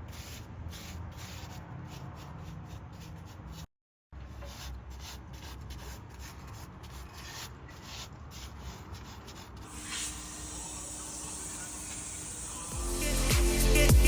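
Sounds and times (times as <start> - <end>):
bright hiss: 9.7 - 13.8.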